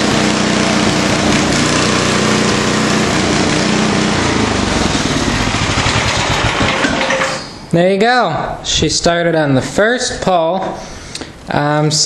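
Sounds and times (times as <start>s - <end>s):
small gasoline engine running: 0.0s - 7.5s.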